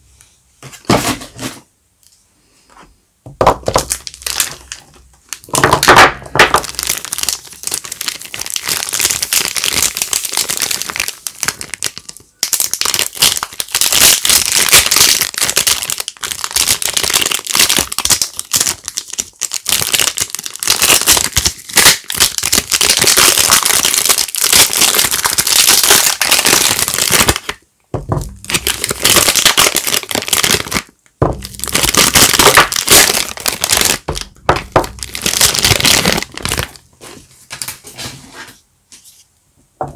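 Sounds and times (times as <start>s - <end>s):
soap wrappers crinkling and tearing: 3.6s - 36.9s.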